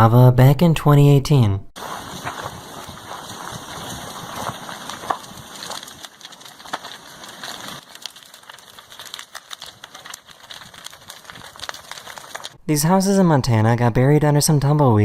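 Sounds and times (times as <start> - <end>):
sharp cracks and pops: 1.8 - 12.6
wood crackling and splintering: 1.8 - 12.6.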